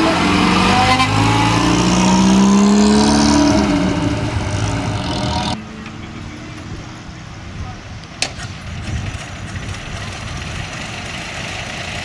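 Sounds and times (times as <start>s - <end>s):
car engine accelerating: 0.0s - 5.6s.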